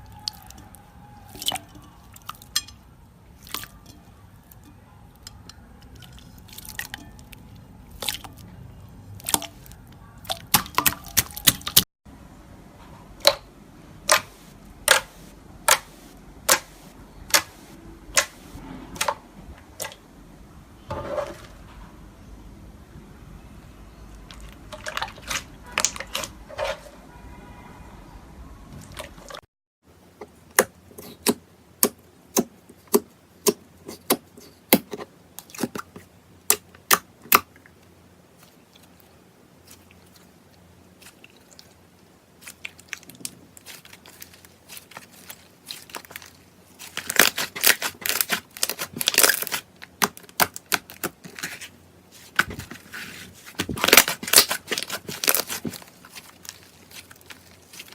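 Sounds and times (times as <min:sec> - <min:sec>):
slime crackling: 0:41.0 - 0:57.9.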